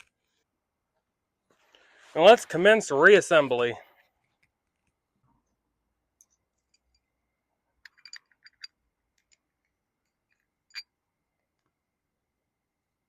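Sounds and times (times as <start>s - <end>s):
clicks of small parts handled: 7.8s - 10.9s.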